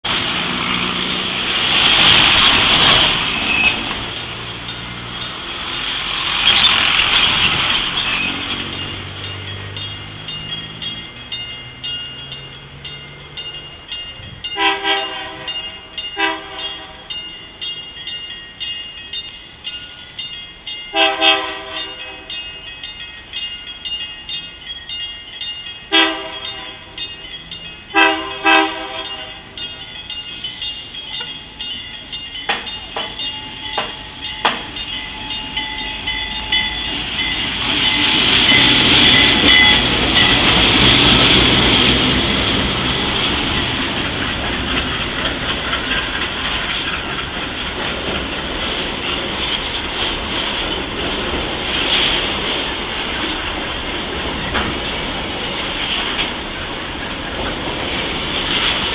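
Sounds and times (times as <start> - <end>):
freight train wheel clatter: 0.1 - 58.9
train horn blasts: 14.6 - 17.1, 20.9 - 22.3, 25.9 - 26.9, 27.9 - 29.6
steady high tone: 21.8 - 40.6.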